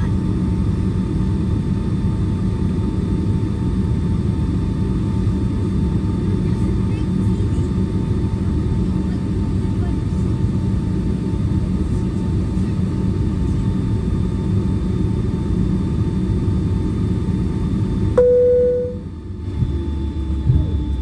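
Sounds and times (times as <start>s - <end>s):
aircraft cabin rumble: 0.0s - 21.0s
faint steady whine: 18.1s - 21.0s.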